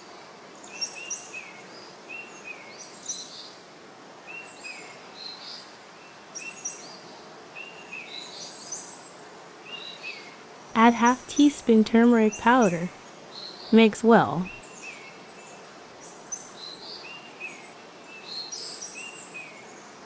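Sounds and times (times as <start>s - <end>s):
birds chirping: 10.8s - 15.6s.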